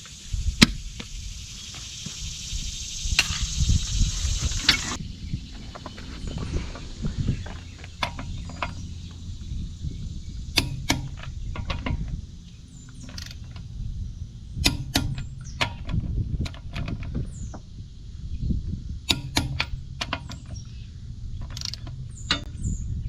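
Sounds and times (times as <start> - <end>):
low steady rumble: 0.0 - 23.0
hand tools clicking on metal: 12.9 - 13.7, 14.6 - 17.0, 19.1 - 20.6, 21.4 - 22.5.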